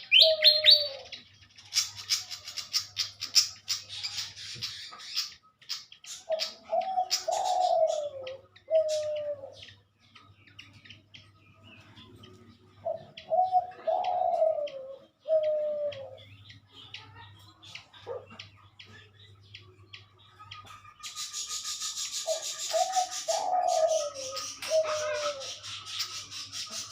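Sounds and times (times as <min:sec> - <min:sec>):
dove cooing: 0:00.0 - 0:05.3, 0:06.0 - 0:10.2, 0:11.7 - 0:16.4, 0:20.7 - 0:26.9
small birds chirping: 0:00.0 - 0:26.9.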